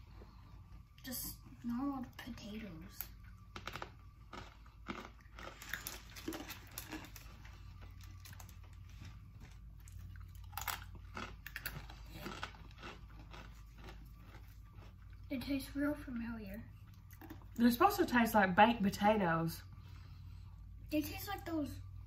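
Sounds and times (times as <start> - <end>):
people chewing crunchy potato sticks: 3.0 - 15.4, 16.8 - 17.8.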